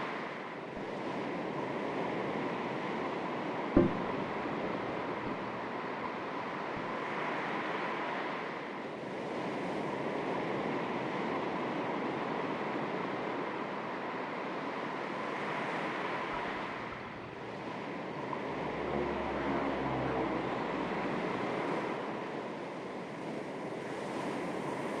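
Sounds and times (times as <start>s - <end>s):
small waves lapping on shore: 0.0s - 25.0s
low rumble: 3.8s - 6.9s.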